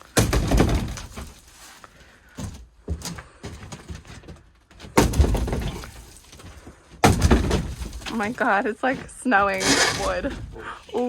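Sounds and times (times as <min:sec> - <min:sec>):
heavy thud: 0:07.0 - 0:08.2
knocks on wooden framing: 0:07.0 - 0:08.2.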